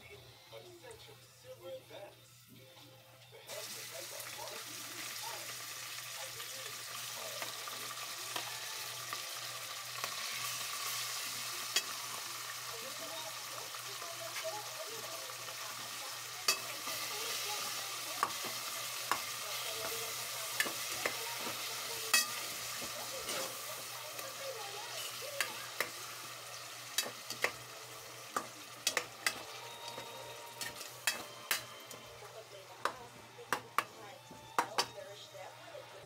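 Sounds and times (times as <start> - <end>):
meat sizzling in hot oil: 3.5 - 35.1
metal spoon scraping a pot: 20.1 - 23.7, 28.4 - 31.9.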